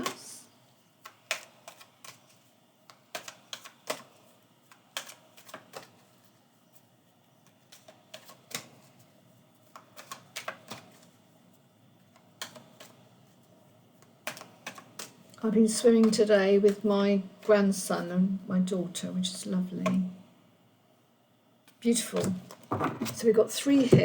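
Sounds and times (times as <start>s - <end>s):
cards shuffled on a table: 1.0s - 11.2s, 12.0s - 15.3s.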